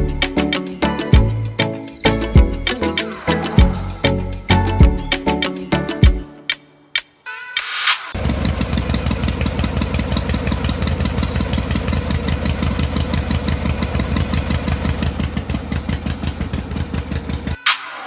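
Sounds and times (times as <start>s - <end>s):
engine idling: 8.2s - 17.6s.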